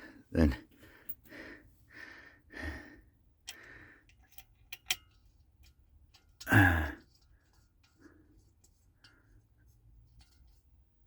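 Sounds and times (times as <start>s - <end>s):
small parts clicking: 3.4s - 8.0s
man exhaling: 6.5s - 7.0s
man groaning: 6.5s - 7.0s.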